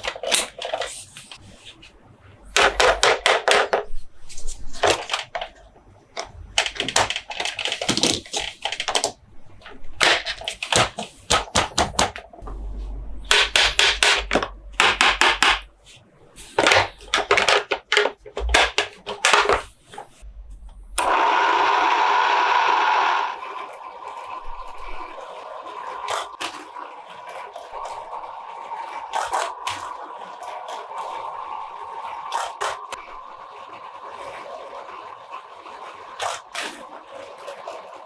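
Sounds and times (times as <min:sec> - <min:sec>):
hands tapping plastic toys: 0:00.0 - 0:01.4, 0:02.5 - 0:03.9, 0:04.7 - 0:09.2, 0:10.0 - 0:12.4, 0:13.3 - 0:15.7, 0:16.6 - 0:20.1
handling noise: 0:00.0 - 0:21.0.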